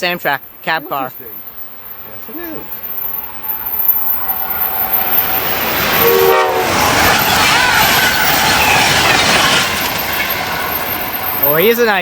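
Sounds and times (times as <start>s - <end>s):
train passing at speed: 0.0s - 12.0s
wheels rushing on rail: 0.0s - 12.0s
train horn blast: 6.0s - 7.1s.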